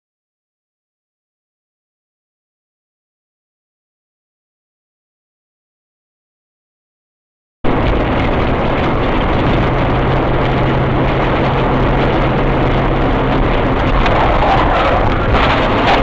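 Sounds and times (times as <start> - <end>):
road noise: 7.7 - 16.0
car engine hum: 7.8 - 16.0.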